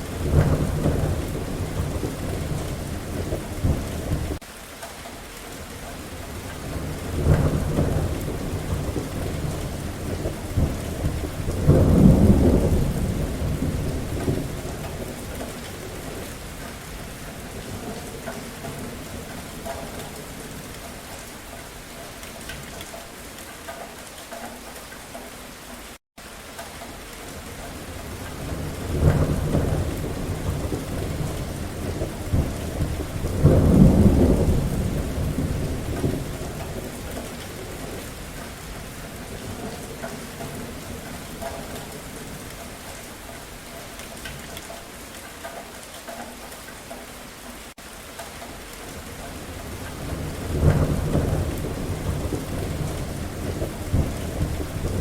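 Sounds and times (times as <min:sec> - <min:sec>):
rolling thunder: 0:00.0 - 0:04.4, 0:06.2 - 0:21.2, 0:27.8 - 0:42.5, 0:48.9 - 0:55.0
steady rain: 0:00.0 - 0:55.0.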